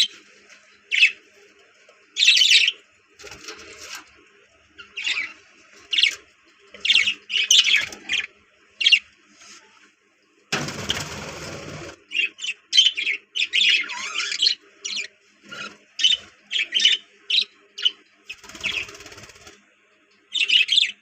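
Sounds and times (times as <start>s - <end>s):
budgerigars chirping: 2.2s - 2.8s, 4.8s - 6.2s, 6.8s - 9.0s, 11.0s - 19.4s
rustling noise: 9.2s - 10.0s.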